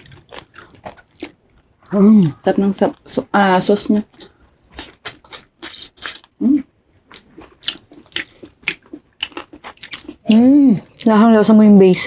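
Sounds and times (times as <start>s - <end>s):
wet chewing and smacking: 0.0s - 6.4s, 7.0s - 11.2s
person humming: 6.4s - 6.6s.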